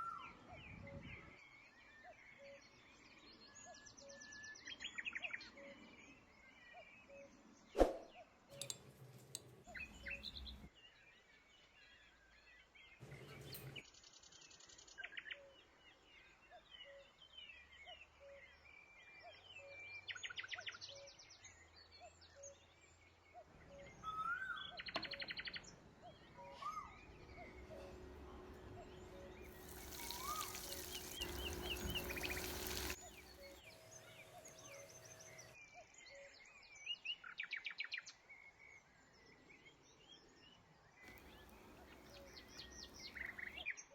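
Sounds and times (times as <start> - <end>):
birds chirping and singing: 8.6 - 10.7, 26.6 - 35.5.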